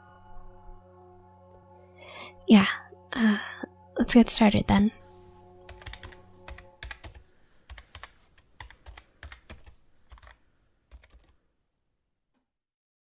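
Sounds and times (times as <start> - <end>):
typing on computer keyboard: 5.7 - 11.4.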